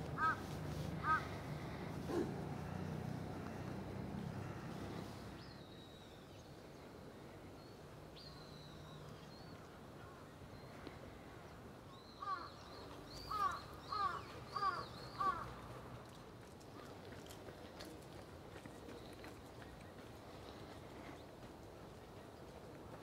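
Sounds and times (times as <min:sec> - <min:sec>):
crow cawing: 0:00.2 - 0:01.4, 0:12.2 - 0:12.5, 0:13.3 - 0:15.4.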